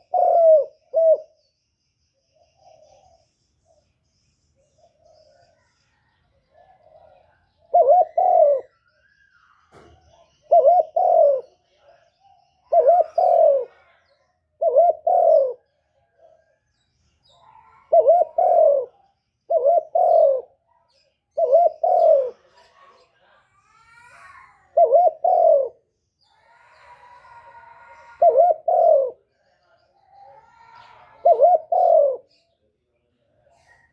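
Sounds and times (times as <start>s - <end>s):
bird two-note coo: 0.0s - 1.4s, 7.7s - 8.7s, 10.5s - 11.5s, 12.7s - 13.8s, 14.6s - 15.6s, 17.9s - 18.9s, 19.5s - 20.5s, 21.4s - 22.4s, 24.8s - 25.8s, 28.0s - 29.2s, 31.1s - 32.3s.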